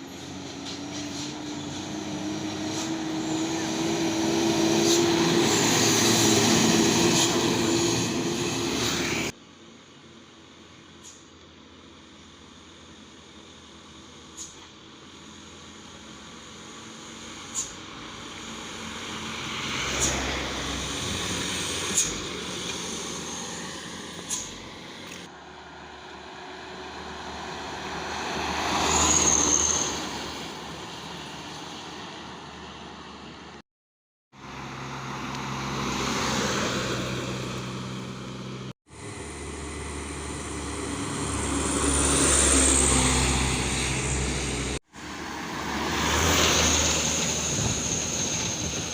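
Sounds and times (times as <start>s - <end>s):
trucks driving past: 0.0s - 33.6s, 34.3s - 48.9s.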